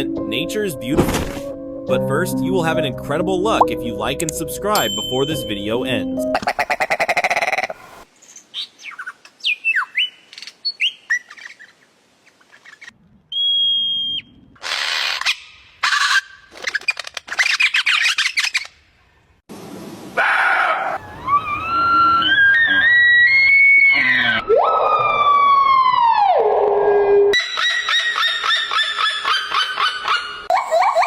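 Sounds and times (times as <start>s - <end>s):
bird chirps and whistles: 8.6s - 11.7s, 12.6s - 14.3s.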